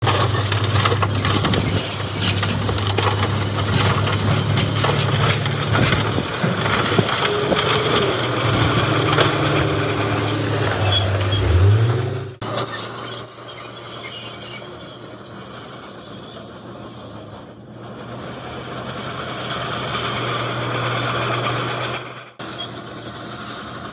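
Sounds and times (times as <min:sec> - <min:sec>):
crunching and clattering: 0:00.0 - 0:12.1
diesel engine running: 0:00.0 - 0:12.7, 0:16.6 - 0:23.9.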